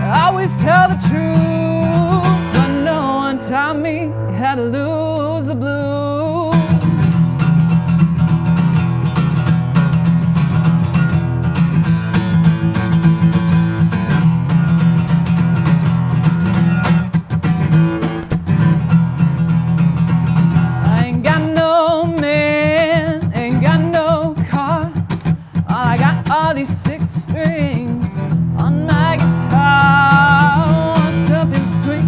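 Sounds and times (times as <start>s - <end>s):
acoustic guitar blues: 0.0s - 32.0s.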